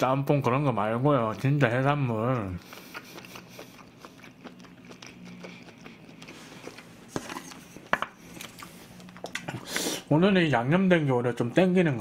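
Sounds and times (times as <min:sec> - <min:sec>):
chewing and wet mouth clicks: 0:02.2 - 0:06.8.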